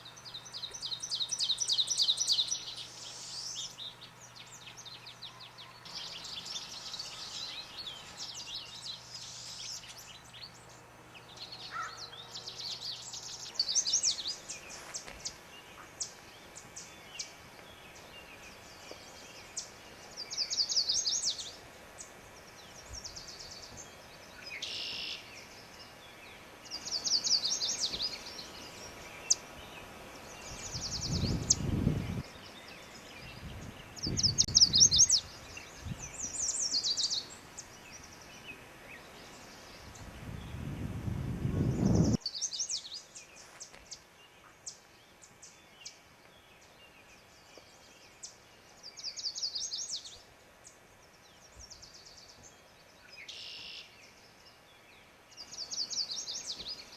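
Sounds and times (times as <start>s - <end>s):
songbirds trilling: 0.0s - 56.9s.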